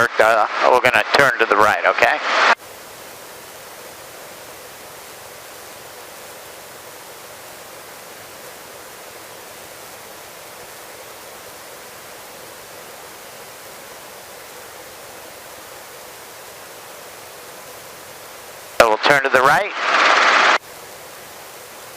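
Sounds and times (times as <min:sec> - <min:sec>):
helicopter cabin hiss: 0:13.9 - 0:20.6.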